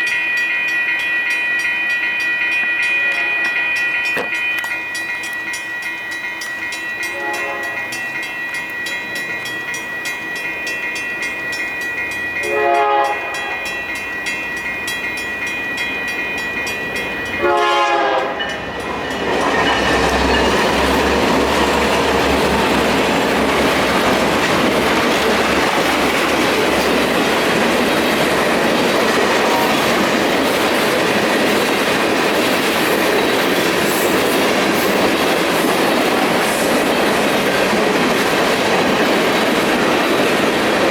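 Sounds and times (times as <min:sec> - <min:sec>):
electronic crossing bell ringing: 0:00.0 - 0:30.5
train wheel noise: 0:00.0 - 0:40.9
locomotive horn blasts: 0:03.0 - 0:03.6, 0:07.1 - 0:08.0, 0:12.4 - 0:13.7, 0:17.4 - 0:18.5
locomotive engine rumble: 0:18.5 - 0:30.4.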